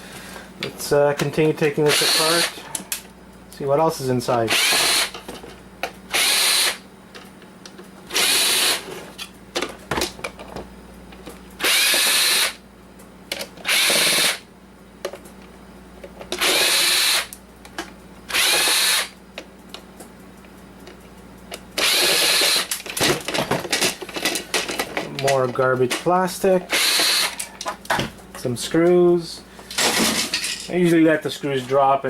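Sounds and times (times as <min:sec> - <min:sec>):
power drill spinning up: 0:01.9 - 0:02.6, 0:04.5 - 0:05.1, 0:06.1 - 0:06.8, 0:08.1 - 0:08.8, 0:11.6 - 0:12.6, 0:13.6 - 0:14.4, 0:16.4 - 0:17.3, 0:18.3 - 0:19.1, 0:21.8 - 0:22.7, 0:26.7 - 0:27.4
screws and plastic parts rattling: 0:21.8 - 0:26.1.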